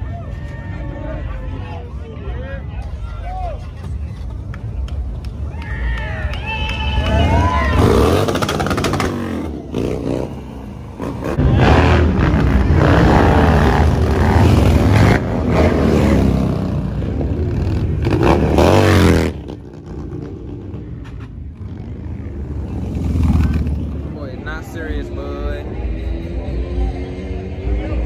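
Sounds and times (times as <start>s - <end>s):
motorcycle engine revving: 7.1s - 28.0s.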